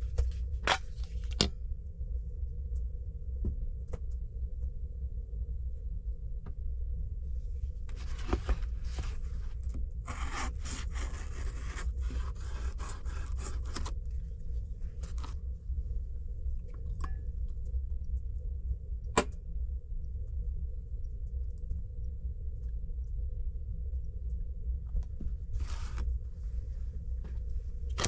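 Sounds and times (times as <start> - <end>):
steady low rumble: 0.0 - 28.0
scraping and rustling handling: 7.9 - 14.0, 14.9 - 15.4, 25.5 - 26.1.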